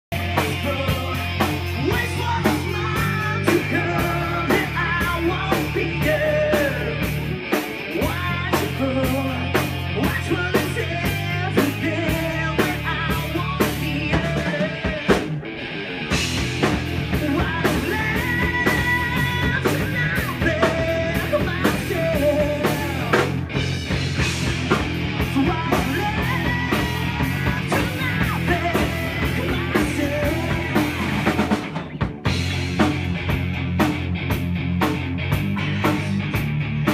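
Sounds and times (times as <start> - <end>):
bass line: 0.0 - 36.9
drum kit beat: 0.1 - 15.5, 16.1 - 36.9
person singing: 0.2 - 7.2, 7.9 - 15.4, 17.0 - 23.3, 25.2 - 31.5, 35.5 - 36.4.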